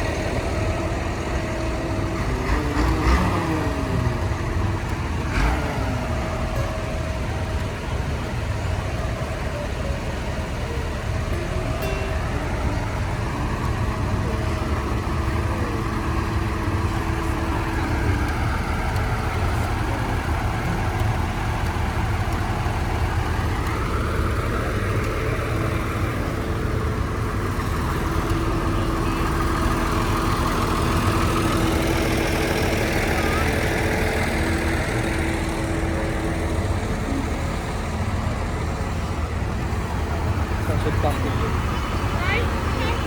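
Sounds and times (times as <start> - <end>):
tractor engines running: 0.0 - 43.0.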